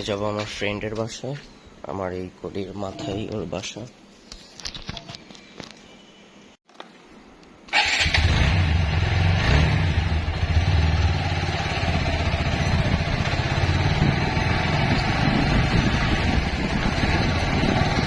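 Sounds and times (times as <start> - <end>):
motorcycle engine running: 8.0 - 18.0.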